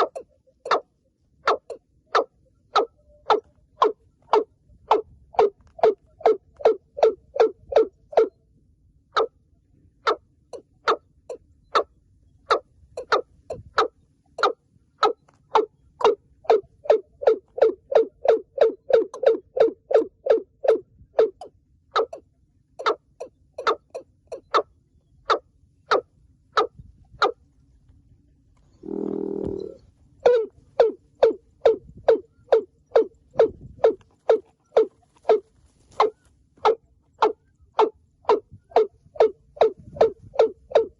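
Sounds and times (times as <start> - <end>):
bird calling with hollow knocking notes: 0.0 - 28.0, 28.6 - 40.9
low humming note: 23.4 - 40.9.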